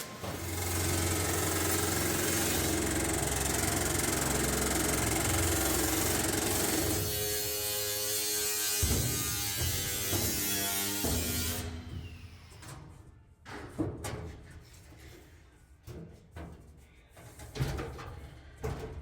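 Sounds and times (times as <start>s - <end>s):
power tool motor buzzing: 0.3s - 11.9s.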